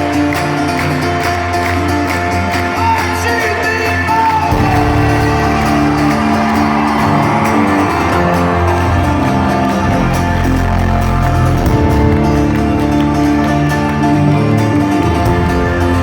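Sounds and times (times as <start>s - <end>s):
live folk-rock band playing: 0.0s - 16.0s
fans whooping and shouting: 2.6s - 16.0s
bass part: 4.5s - 16.0s.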